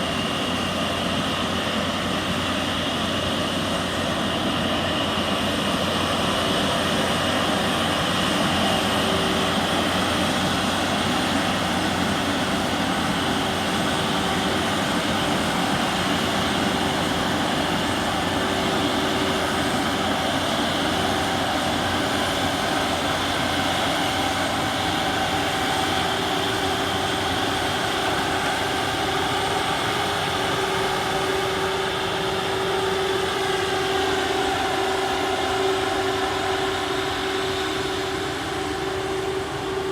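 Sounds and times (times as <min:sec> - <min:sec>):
asphalt saw cutting pavement: 0:00.0 - 0:39.9.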